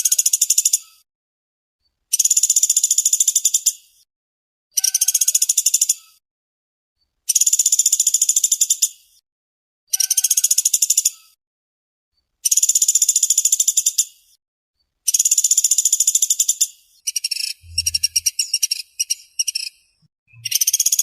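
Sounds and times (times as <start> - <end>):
woodpecker rattling trills: 15.1 - 21.0.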